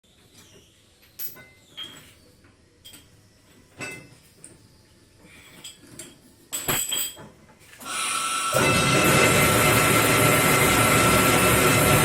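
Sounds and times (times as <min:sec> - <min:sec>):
light metallic clinks: 0:01.0 - 0:04.6.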